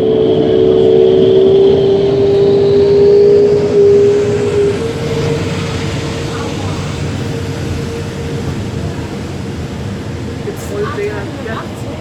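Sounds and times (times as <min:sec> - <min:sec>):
faint rising whine: 0:00.0 - 0:08.9
jet engines roaring at take-off: 0:00.0 - 0:12.0.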